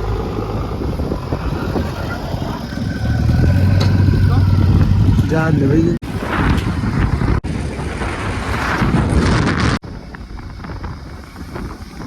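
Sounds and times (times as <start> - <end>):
diesel engine running: 0.0 - 6.0
wind buffeting microphone: 0.0 - 12.0.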